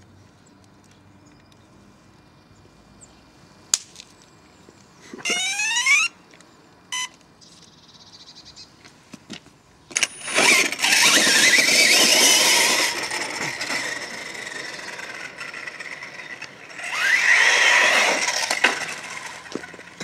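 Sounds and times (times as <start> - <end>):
tyre noise: 9.9 - 20.0
electric motor whining: 10.0 - 20.0.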